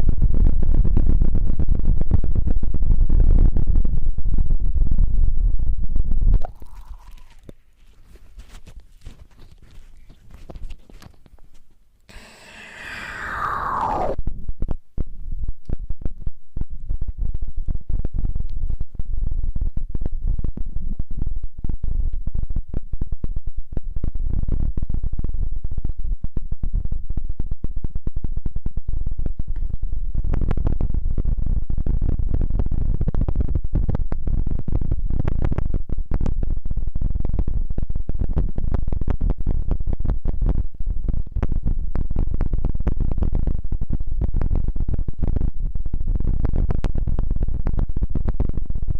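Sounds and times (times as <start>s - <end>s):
close-miked rubbing and crackling: 6.4s - 11.9s.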